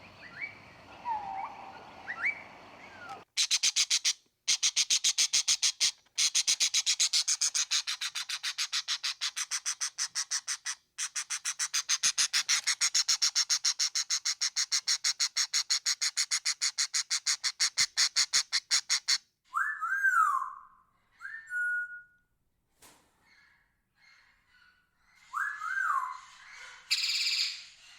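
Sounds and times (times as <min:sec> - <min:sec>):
bird whistled calls: 0:00.0 - 0:03.6, 0:25.3 - 0:26.2.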